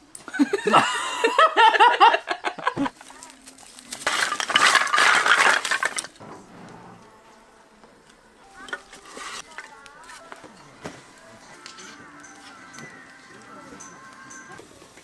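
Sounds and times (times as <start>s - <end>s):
hard objects clinking and clattering: 2.9s - 6.5s, 8.6s - 11.0s.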